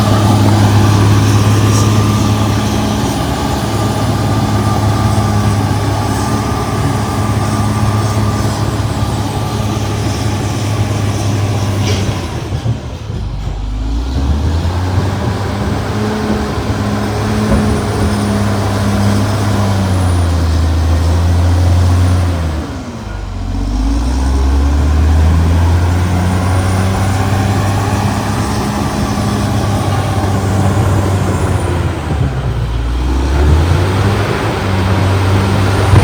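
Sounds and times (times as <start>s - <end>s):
bulldozer diesel engine running hard: 0.0s - 36.0s.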